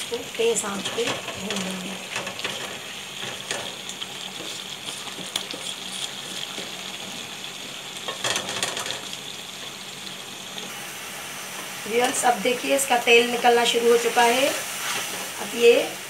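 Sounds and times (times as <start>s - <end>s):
curry sizzling in a pan: 0.0s - 16.0s
spatula scraping and knocking pan: 0.7s - 9.2s.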